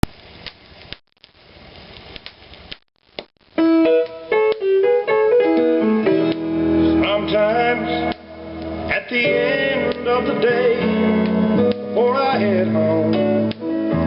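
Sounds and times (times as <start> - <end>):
vinyl surface hiss: 0.0 - 14.0
piano intro: 3.6 - 14.0.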